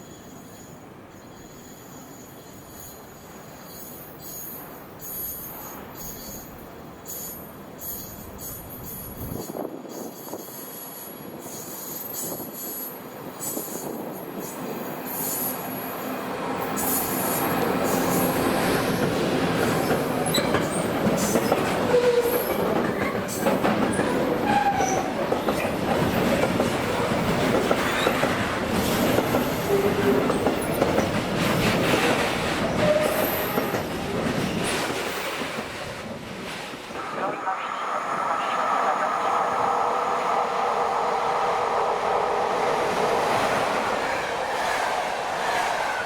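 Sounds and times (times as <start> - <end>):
train wheel squeals: 0.0 - 18.8, 19.7 - 26.2, 27.5 - 31.2, 31.8 - 35.4
train wagons rumbling: 16.4 - 37.6.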